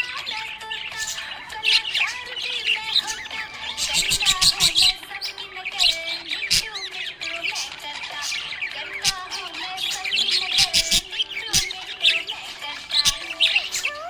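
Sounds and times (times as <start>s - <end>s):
budgerigars chirping: 0.0s - 14.0s.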